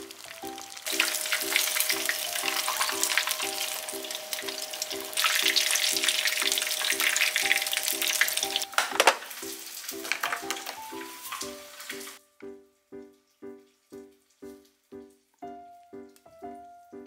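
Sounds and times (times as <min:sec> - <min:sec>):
fish frying in hot oil: 0:00.0 - 0:12.2, 0:13.0 - 0:16.5.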